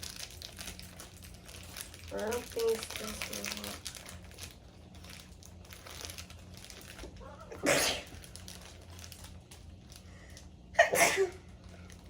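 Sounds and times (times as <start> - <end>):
person sneezing: 7.5 - 8.2, 10.8 - 11.4.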